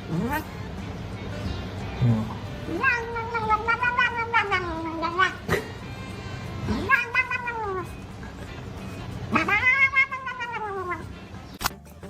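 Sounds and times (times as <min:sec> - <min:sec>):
cat yowling: 0:00.0 - 0:00.6, 0:02.6 - 0:08.0, 0:09.3 - 0:11.1.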